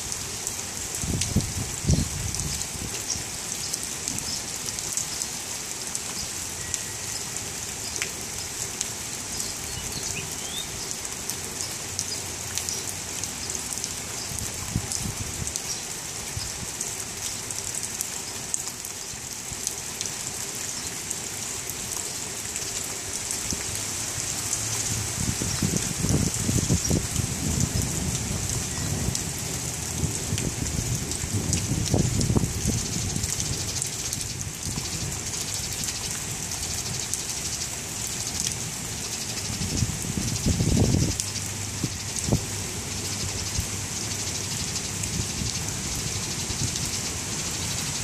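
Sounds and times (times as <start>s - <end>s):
rain falling on leaves: 0.0s - 48.0s.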